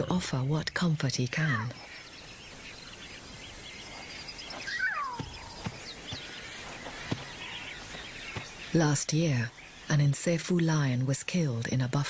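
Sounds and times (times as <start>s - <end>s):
birds chirping: 0.0s - 12.0s
bird call falling in pitch: 4.6s - 6.5s.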